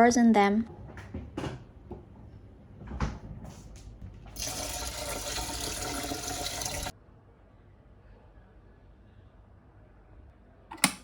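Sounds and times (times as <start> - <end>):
kitchen tap running: 4.3 - 6.9.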